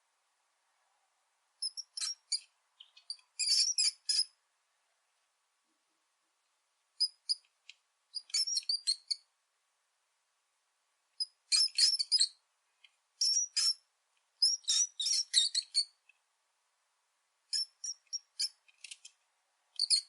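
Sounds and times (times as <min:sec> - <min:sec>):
rat squeaking: 0:01.6 - 0:04.4, 0:07.0 - 0:07.5, 0:08.1 - 0:09.3, 0:11.2 - 0:12.4, 0:13.2 - 0:13.8, 0:14.4 - 0:16.0, 0:17.5 - 0:19.1, 0:19.8 - 0:20.0.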